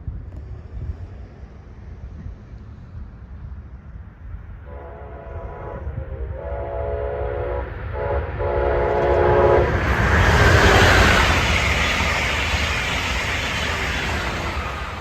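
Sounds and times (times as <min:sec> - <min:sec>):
train rumble: 0:00.0 - 0:15.0
locomotive air horn: 0:04.6 - 0:10.0.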